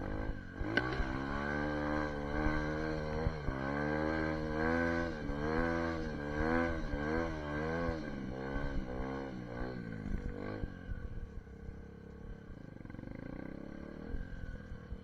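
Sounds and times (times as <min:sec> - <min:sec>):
dirt bike engine revving: 0:00.0 - 0:10.7.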